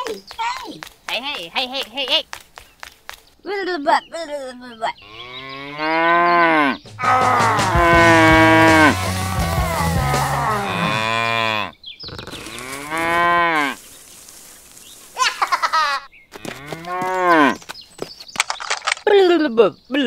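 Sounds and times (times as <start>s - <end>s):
cow mooing: 5.0s - 13.8s, 16.5s - 17.6s.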